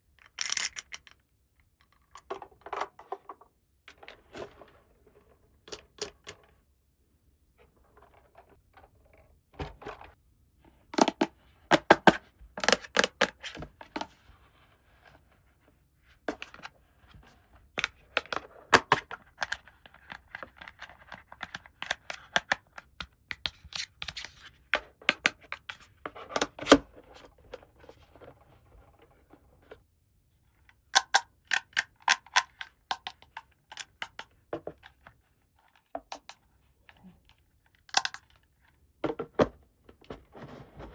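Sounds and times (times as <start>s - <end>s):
plastic toy pieces clicking: 0.2s - 1.2s.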